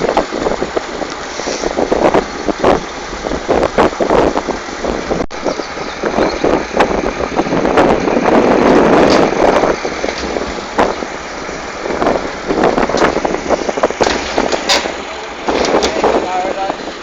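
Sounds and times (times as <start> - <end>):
tractor engine running: 0.0 - 17.0
wind buffeting microphone: 0.0 - 17.0
rattles and knocks: 7.3 - 16.8.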